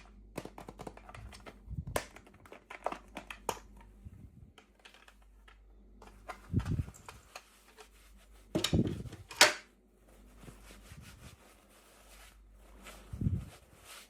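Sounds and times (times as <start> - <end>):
hands rubbing toy packaging: 4.8 - 9.3, 10.0 - 14.0.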